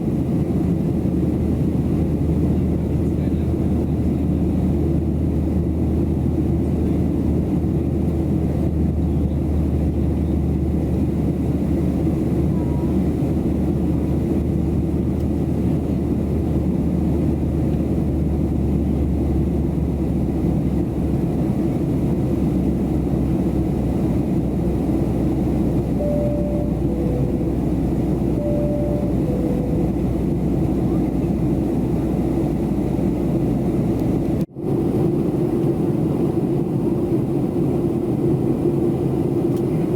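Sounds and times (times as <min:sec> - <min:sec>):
airplane cabin engine roar: 0:00.0 - 0:39.9
two-note cabin chime: 0:26.0 - 0:30.8.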